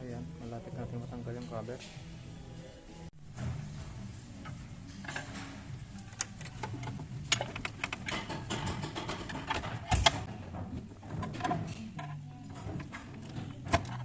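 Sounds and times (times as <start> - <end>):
metallic clicks and knocks: 4.4 - 14.0.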